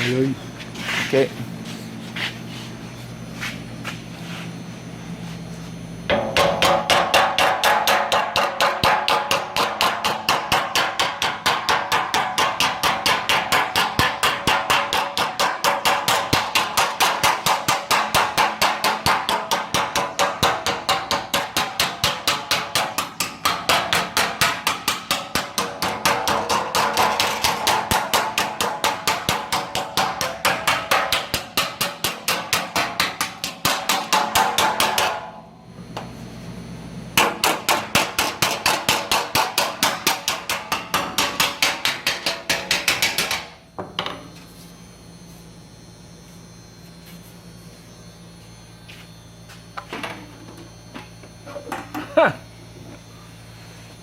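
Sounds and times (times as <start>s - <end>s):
hammer blows on sheet metal: 6.1s - 35.4s.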